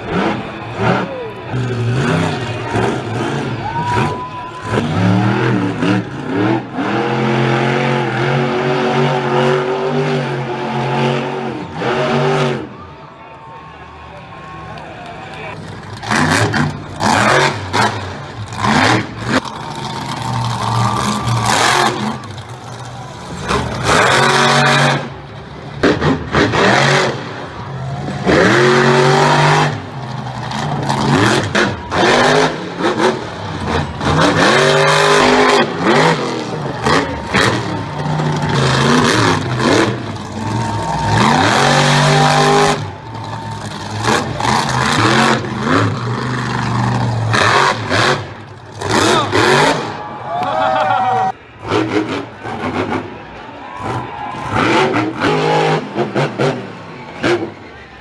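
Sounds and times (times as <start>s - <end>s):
truck engine revving: 0.0s - 13.0s, 15.4s - 58.0s.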